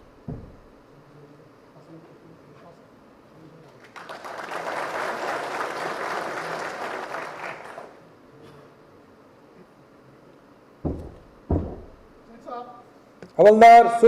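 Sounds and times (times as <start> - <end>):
audience applauding: 3.8 - 8.0.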